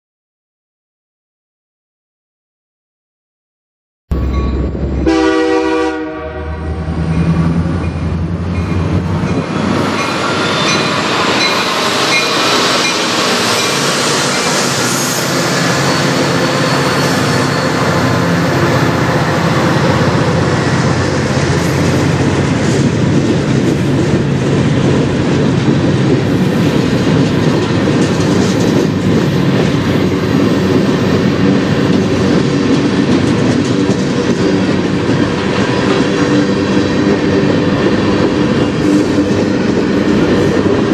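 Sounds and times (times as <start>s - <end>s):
locomotive engine rumble: 4.1s - 40.9s
locomotive horn: 4.2s - 7.1s
train wheels clattering on rails: 7.0s - 40.9s.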